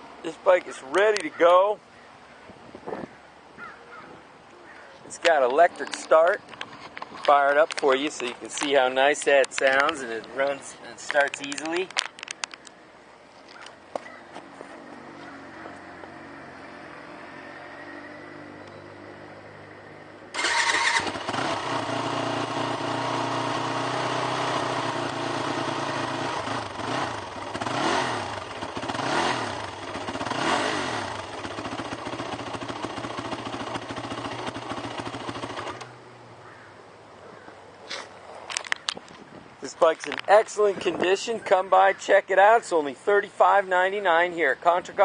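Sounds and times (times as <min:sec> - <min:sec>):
motorcycle engine revving: 0:20.3 - 0:36.0
electric starter: 0:20.4 - 0:25.8.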